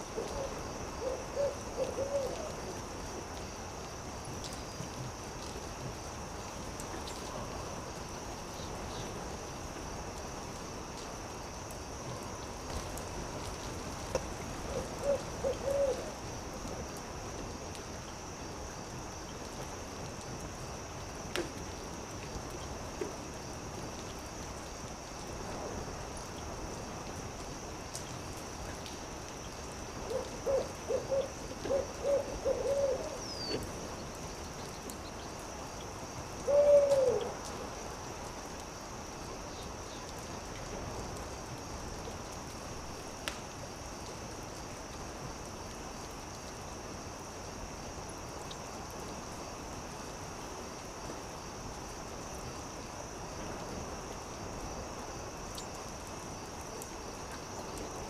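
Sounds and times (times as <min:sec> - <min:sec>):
steady hiss: 0:00.0 - 0:58.0
owl hooting: 0:00.2 - 0:02.6, 0:14.7 - 0:16.2, 0:30.1 - 0:33.6, 0:36.4 - 0:37.3.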